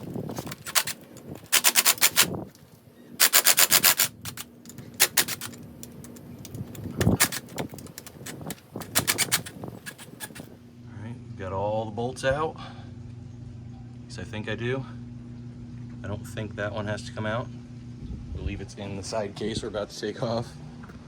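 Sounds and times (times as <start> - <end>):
hand ratchet clicking: 0.0 - 2.4, 3.2 - 10.5.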